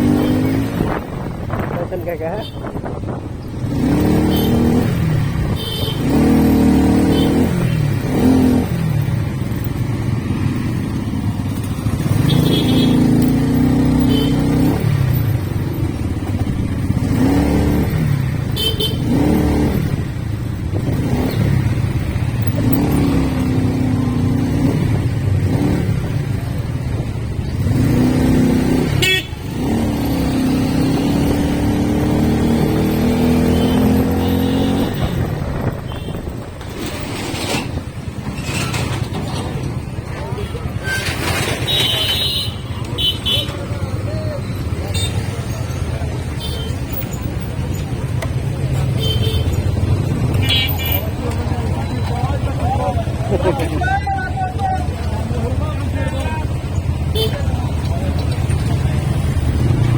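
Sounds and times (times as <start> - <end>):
motorcycle engine revving: 0.0 - 59.9
motorcycle horn toots: 4.2 - 4.7, 5.5 - 6.3, 12.1 - 13.1, 14.0 - 14.6, 18.5 - 19.2, 28.9 - 29.5, 33.4 - 36.4, 41.6 - 43.6, 44.9 - 45.3, 46.4 - 46.8, 48.9 - 49.7, 57.1 - 57.6.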